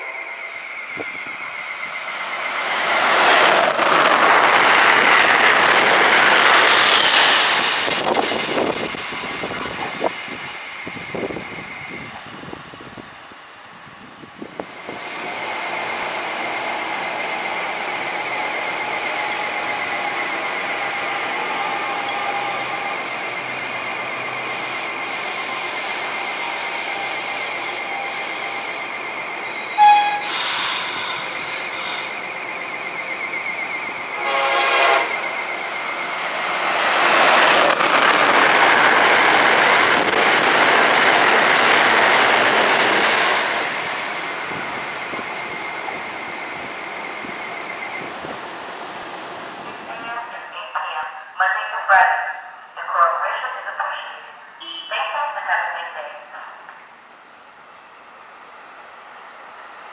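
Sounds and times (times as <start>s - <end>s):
electric train whine: 0.0s - 51.4s
train passing with rushing roar: 0.0s - 59.9s
train horn note: 34.2s - 35.2s.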